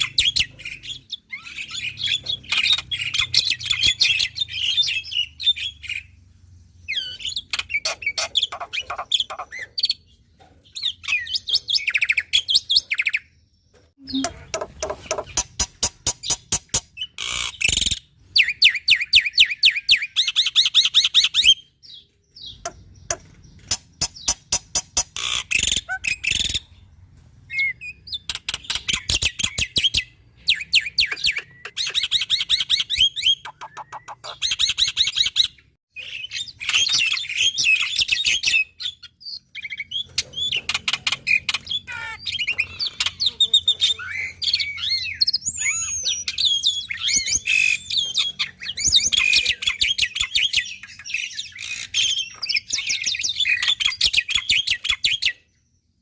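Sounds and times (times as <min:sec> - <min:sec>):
myna whistled song: 0:14.0 - 0:14.4.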